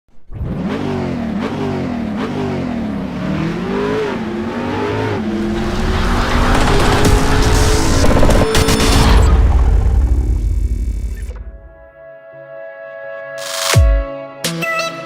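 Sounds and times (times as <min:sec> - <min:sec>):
car engine revving: 0:00.1 - 0:11.7.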